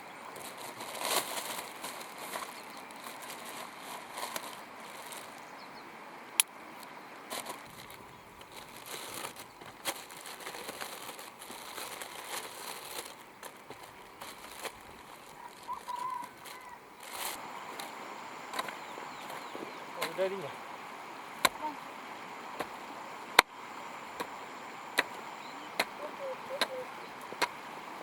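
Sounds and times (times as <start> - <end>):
vegetation crackling and rustling: 0.0 - 5.8, 6.4 - 28.0
hoe chopping into dry soil: 21.4 - 21.6, 22.6 - 22.8, 24.2 - 27.6.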